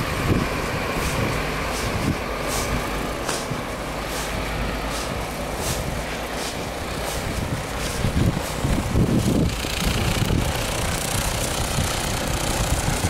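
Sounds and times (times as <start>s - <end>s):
steady low rumble: 0.0s - 13.0s
footsteps crunching through snow: 1.0s - 9.5s.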